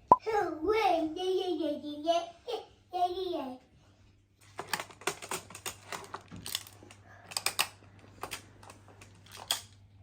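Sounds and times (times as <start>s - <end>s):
plastic tiles clicking and clattering: 4.6s - 9.8s.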